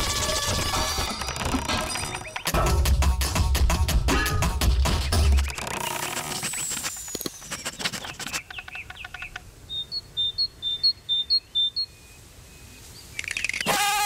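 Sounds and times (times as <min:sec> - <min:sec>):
bird chirping: 0:01.6 - 0:02.6, 0:05.0 - 0:13.8
rapid ticking and clicking: 0:04.7 - 0:09.4.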